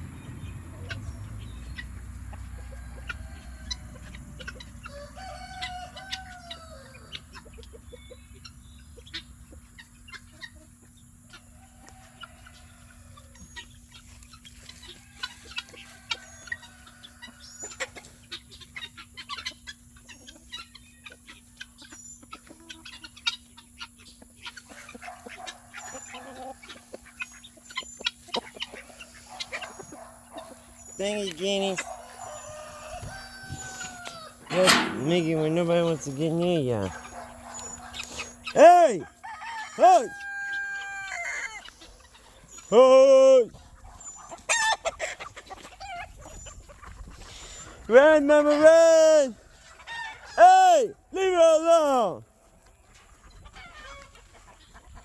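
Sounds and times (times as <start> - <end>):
chickens clucking: 0.0 - 55.0
rooster crowing: 2.6 - 4.1, 4.8 - 7.2, 32.0 - 36.1, 37.3 - 41.6.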